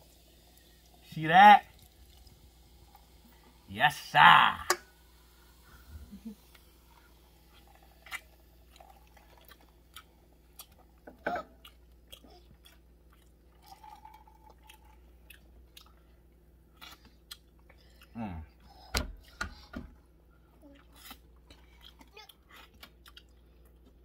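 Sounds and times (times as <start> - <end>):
person chewing wetly: 7.5 - 18.7, 20.6 - 24.0.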